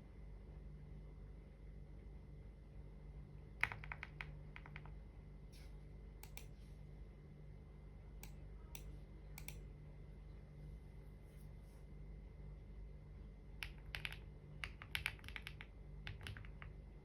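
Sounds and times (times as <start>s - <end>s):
computer keyboard typing: 3.6s - 5.0s, 13.6s - 16.8s.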